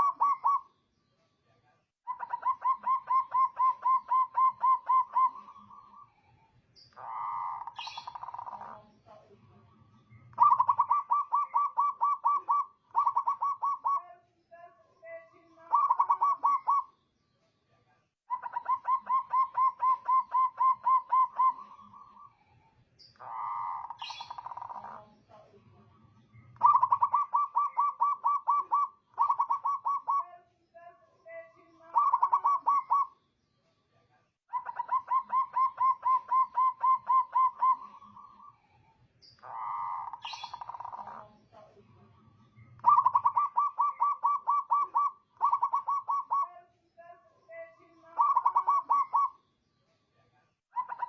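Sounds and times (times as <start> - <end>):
dove cooing: 0.0 - 0.7, 2.1 - 6.1, 6.9 - 9.4, 10.1 - 14.1, 15.1 - 16.9, 18.3 - 22.3, 23.2 - 25.5, 26.4 - 30.3, 31.8 - 33.2, 34.5 - 38.6, 39.4 - 41.9, 42.7 - 46.6, 48.1 - 49.4.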